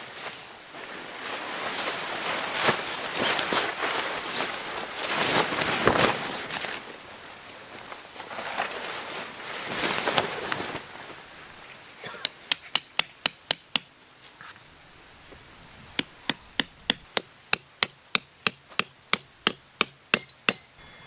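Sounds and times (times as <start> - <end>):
rustling and handling noise: 0.0 - 11.9
sharp hammer strikes: 16.6 - 21.0.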